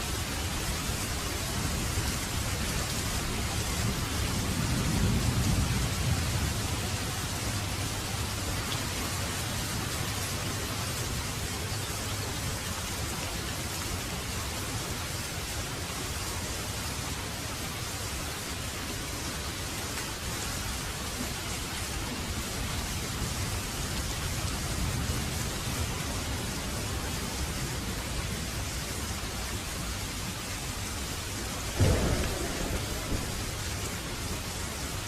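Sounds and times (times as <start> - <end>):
heavy rain falling: 0.0 - 35.0
low rumble: 31.8 - 35.0.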